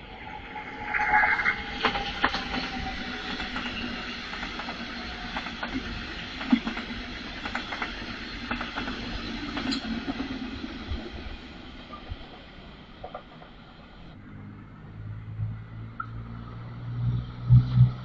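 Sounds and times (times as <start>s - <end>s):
train rolling rumble: 0.0s - 14.2s.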